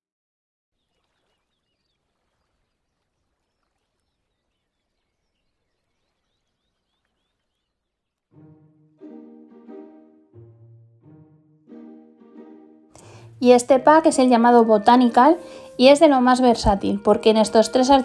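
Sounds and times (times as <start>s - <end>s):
small birds chirping: 0.8s - 8.3s.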